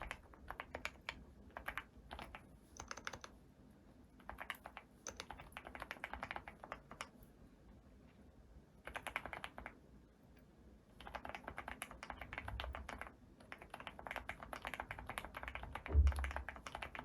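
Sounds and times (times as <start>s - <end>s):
keyboard typing: 0.0s - 3.4s, 4.2s - 7.2s, 8.8s - 9.8s, 11.0s - 17.0s.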